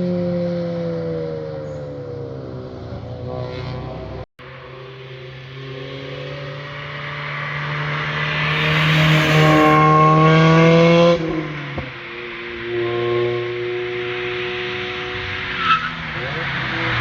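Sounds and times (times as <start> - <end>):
car engine accelerating hard: 2.6 - 17.0.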